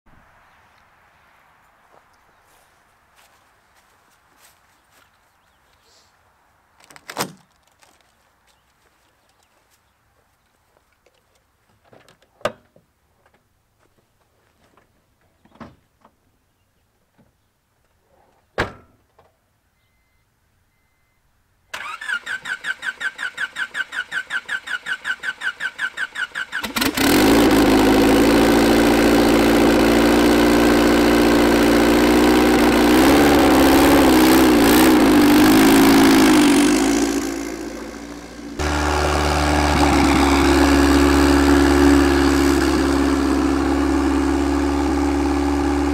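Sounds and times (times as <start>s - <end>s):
engine starter cranking: 21.7s - 30.2s
car engine running loudly: 26.9s - 45.9s.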